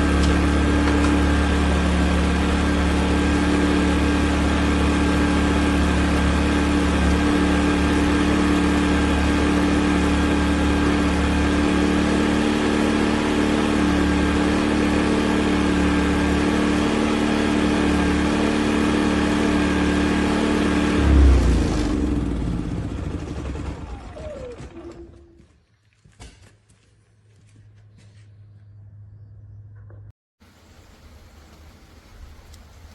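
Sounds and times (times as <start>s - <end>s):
generator winding down: 0.0s - 25.4s
generator running: 0.0s - 25.5s.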